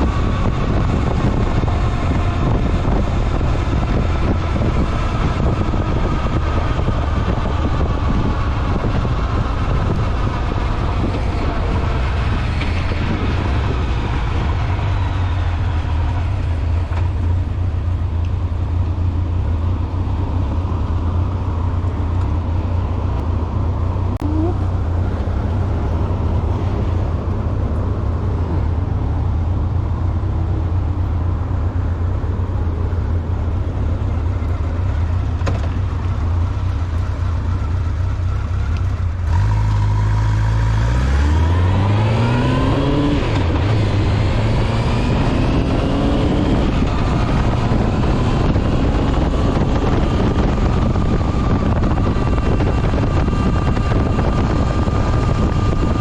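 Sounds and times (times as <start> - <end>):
motorcycle engine running: 30.1 - 40.8, 41.6 - 56.0.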